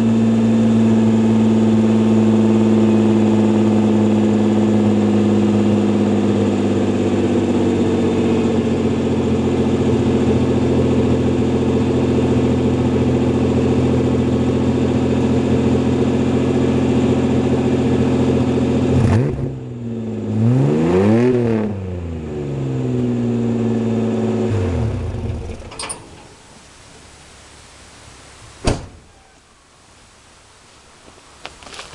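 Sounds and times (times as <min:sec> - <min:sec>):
engine revving and winding down: 0:20.3 - 0:22.6.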